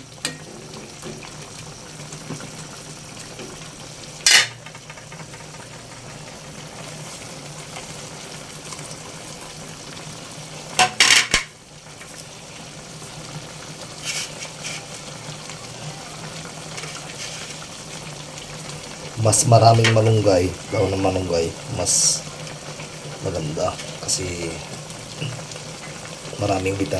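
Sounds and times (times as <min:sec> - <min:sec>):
metal clanks against pot: 0:00.0 - 0:01.4, 0:04.2 - 0:05.8, 0:10.8 - 0:11.6.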